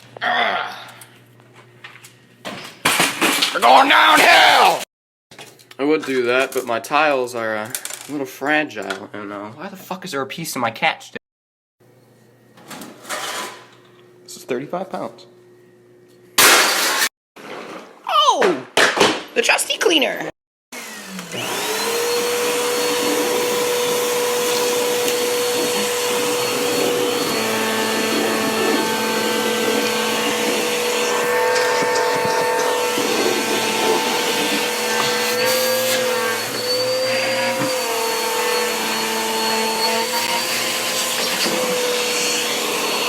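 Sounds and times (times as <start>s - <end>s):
vacuum cleaner motor whining: 20.8s - 43.0s.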